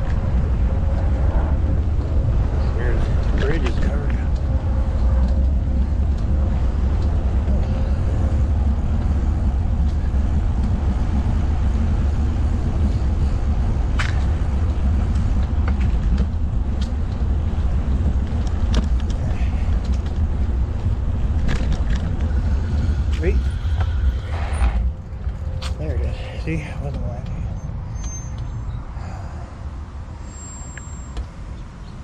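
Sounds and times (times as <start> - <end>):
wind buffeting microphone: 0.0 - 30.2
bike clicks: 3.2 - 11.1, 13.9 - 25.8.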